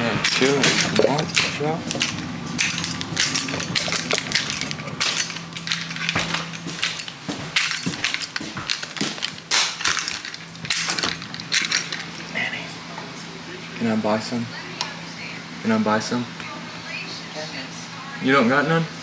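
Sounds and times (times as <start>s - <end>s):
steady low hum: 0.0s - 19.0s
small hard objects clattering: 0.2s - 12.2s.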